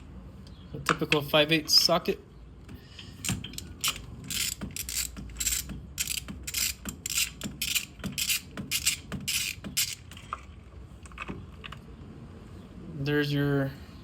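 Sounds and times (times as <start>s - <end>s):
socket ratchet clicking: 3.2s - 10.1s.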